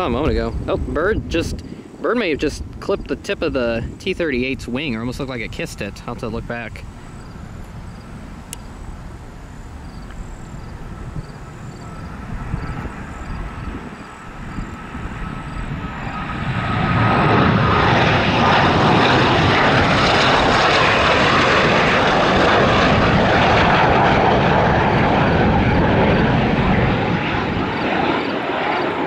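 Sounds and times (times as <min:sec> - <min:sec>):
jet roaring past: 0:00.0 - 0:29.0.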